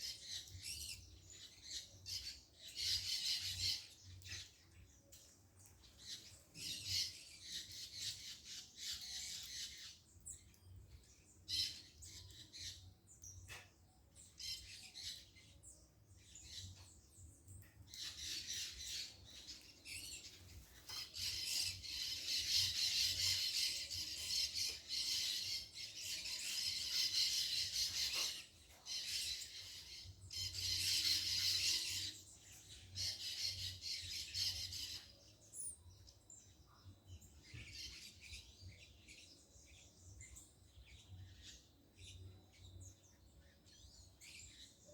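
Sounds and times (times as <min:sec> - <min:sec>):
birds chattering: 0:16.3 - 0:36.6.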